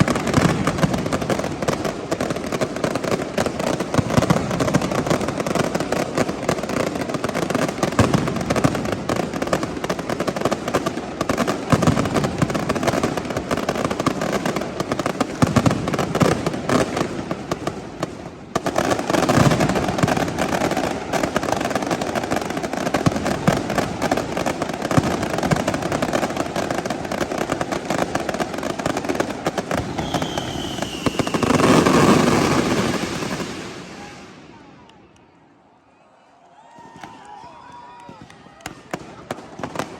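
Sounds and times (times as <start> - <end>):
fireworks bangs and crackles: 0.0 - 35.5, 36.6 - 39.9.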